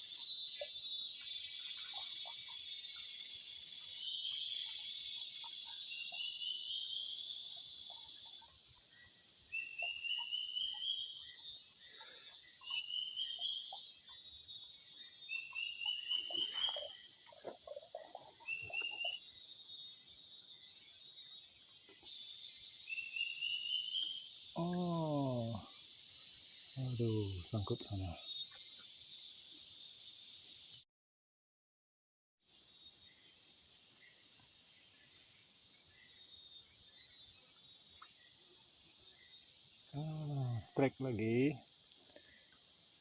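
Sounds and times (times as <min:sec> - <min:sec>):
insect rising trill: 0:22.1 - 0:28.2, 0:39.2 - 0:41.8
insects shrilling: 0:22.1 - 0:28.4, 0:39.1 - 0:43.0.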